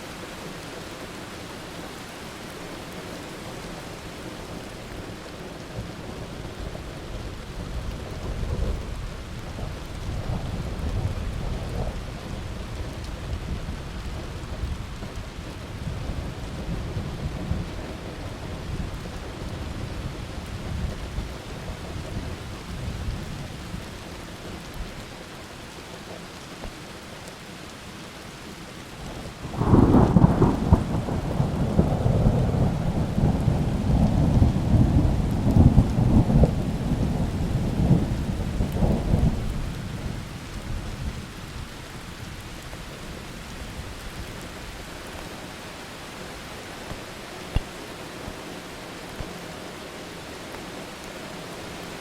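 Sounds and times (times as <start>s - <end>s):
steady rain: 0.0s - 52.0s
thunder rumbling: 29.4s - 41.7s
loud thunderclap: 29.6s - 39.4s.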